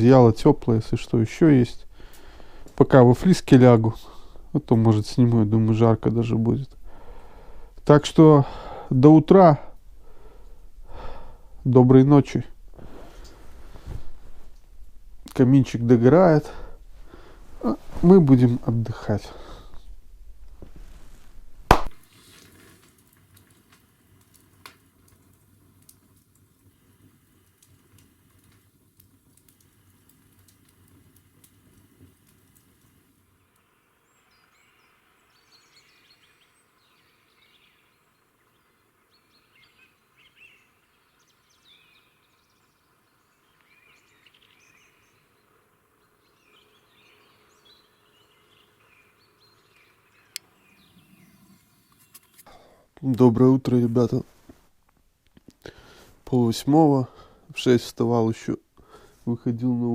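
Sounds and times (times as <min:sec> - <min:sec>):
songbirds chirping: 0:00.0 - 0:20.0, 0:26.6 - 0:54.2.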